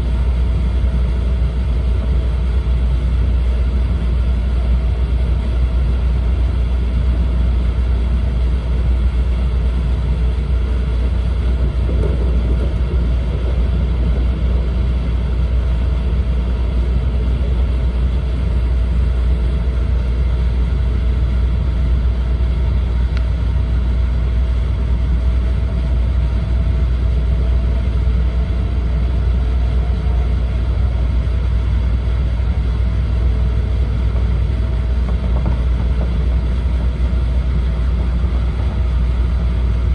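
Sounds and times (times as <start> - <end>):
train cabin rumble: 0.0 - 39.9.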